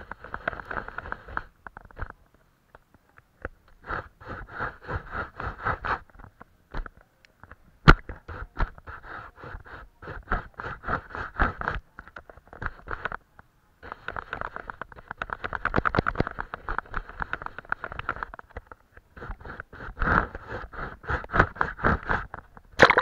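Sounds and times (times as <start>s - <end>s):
paintbrush scraping paper: 3.8s - 6.2s, 8.1s - 13.2s, 13.8s - 22.4s.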